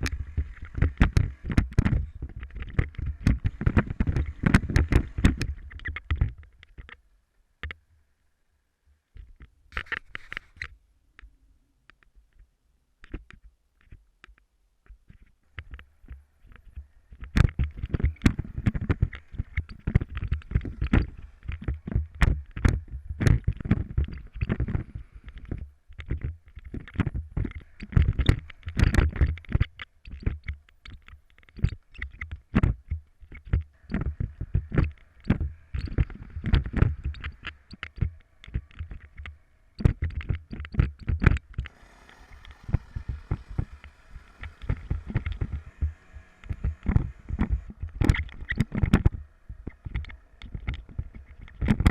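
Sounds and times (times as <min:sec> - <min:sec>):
knocks and rattles: 0:00.0 - 0:07.0, 0:14.9 - 0:51.9
wind on microphone: 0:32.5 - 0:51.9.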